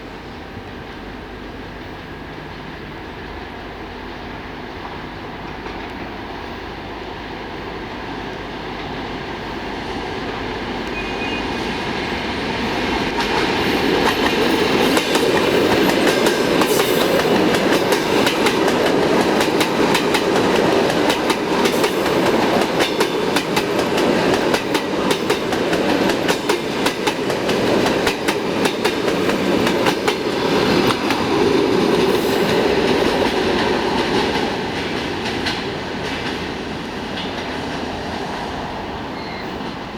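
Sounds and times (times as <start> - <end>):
electric train passing: 0.0 - 39.9.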